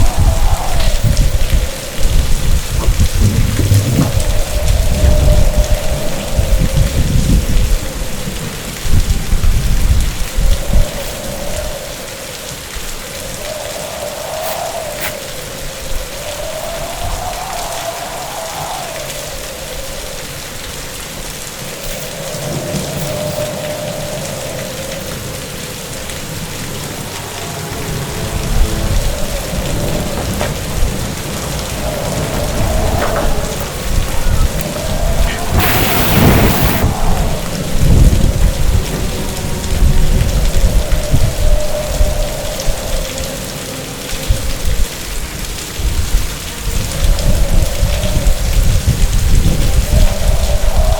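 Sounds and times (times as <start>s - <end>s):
thunder crack: 0.0s - 8.4s, 26.0s - 42.2s
deep thunder rumble: 0.0s - 11.7s, 22.3s - 43.6s
heavy rain pouring: 0.0s - 50.9s.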